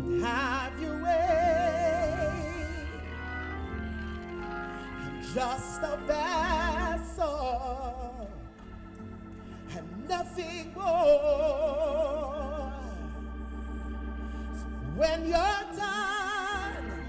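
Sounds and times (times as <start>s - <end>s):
person singing with vibrato: 0.0s - 3.9s, 4.7s - 8.4s, 14.6s - 17.0s
organ and keyboard chords: 0.0s - 17.0s.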